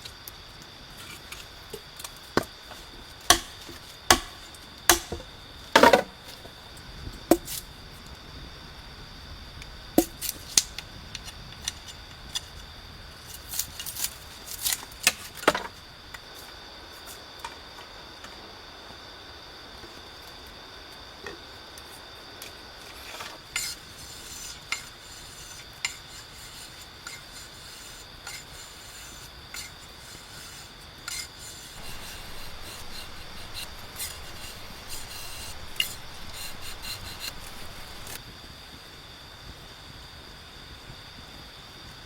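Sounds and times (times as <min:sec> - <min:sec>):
scraping strokes: 0:02.8 - 0:05.2, 0:23.0 - 0:38.2.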